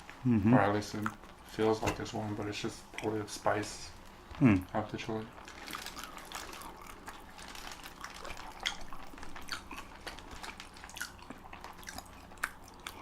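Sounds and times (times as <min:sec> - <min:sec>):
wet chewing and mouth smacks: 0:05.5 - 0:13.0.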